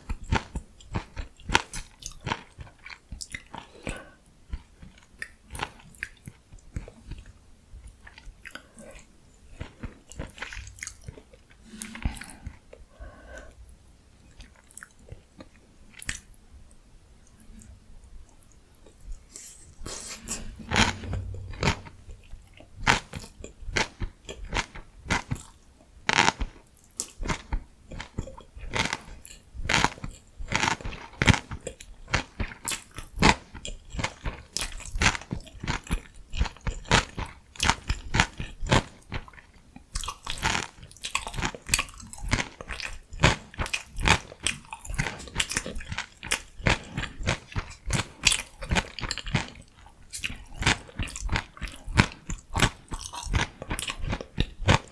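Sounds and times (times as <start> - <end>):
chewing crunchy vegetables: 0.0 - 12.7, 14.2 - 16.4, 23.1 - 54.9.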